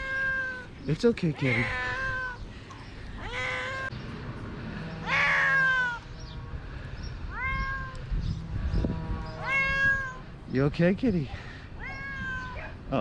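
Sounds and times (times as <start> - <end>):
cat meowing: 0.0 - 0.7, 1.4 - 2.4, 3.2 - 3.9, 5.0 - 6.0, 7.3 - 8.0, 9.4 - 10.2, 11.8 - 12.8.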